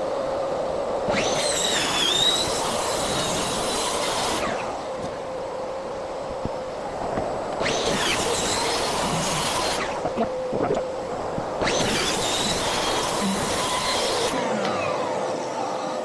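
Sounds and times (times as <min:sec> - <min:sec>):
shop vacuum running: 0:00.0 - 0:16.0
high wavering squeal: 0:01.1 - 0:04.9, 0:11.6 - 0:14.9
power tool cutting: 0:01.1 - 0:05.2, 0:07.5 - 0:10.3, 0:11.2 - 0:16.0.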